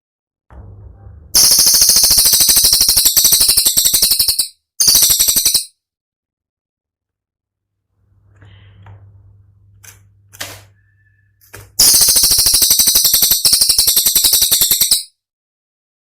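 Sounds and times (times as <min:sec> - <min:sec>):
bird song rapid high notes: 0:01.4 - 0:05.8, 0:10.8 - 0:15.1.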